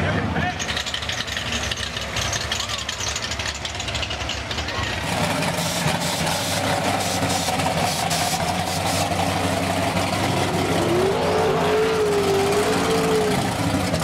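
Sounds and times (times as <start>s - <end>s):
race car engine running: 0.0s - 14.0s
engine whine rising: 4.9s - 14.0s.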